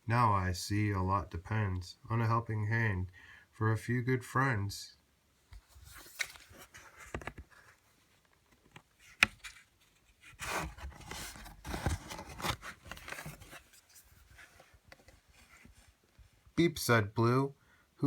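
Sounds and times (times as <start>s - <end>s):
paper pages rustling: 5.5s - 16.0s.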